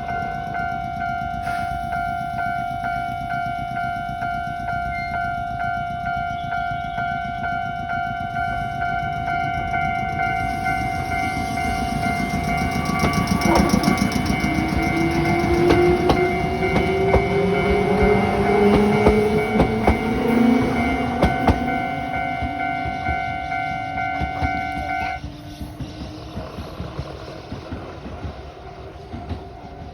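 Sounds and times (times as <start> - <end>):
level-crossing alarm ringing: 0.0 - 25.3
electric train motor whine: 9.8 - 29.5
train wheels clacking over rail joints: 11.4 - 29.9.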